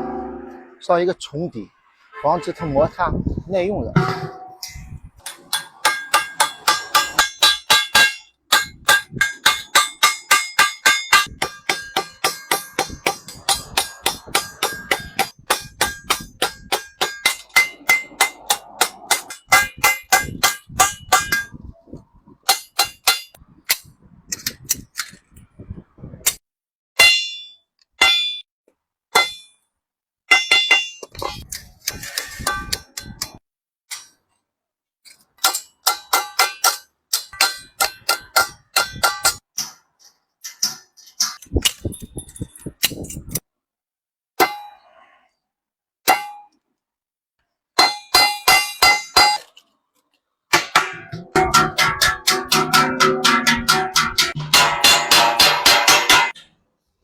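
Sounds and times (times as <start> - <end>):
hammer striking metal bucket: 4.0 - 21.5, 50.5 - 56.5.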